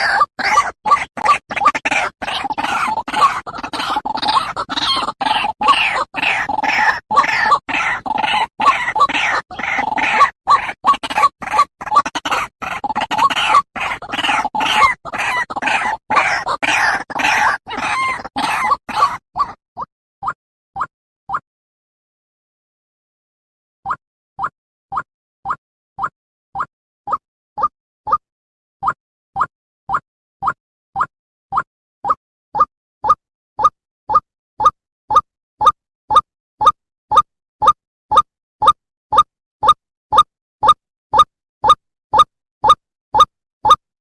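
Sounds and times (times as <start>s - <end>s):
waterhen short repeated calls: 0.0s - 19.6s.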